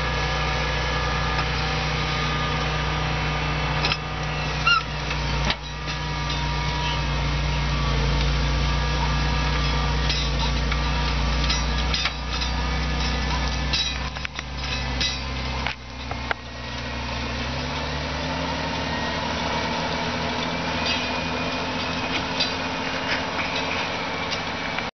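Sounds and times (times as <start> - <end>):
tractor diesel engine running: 0.0 - 24.9.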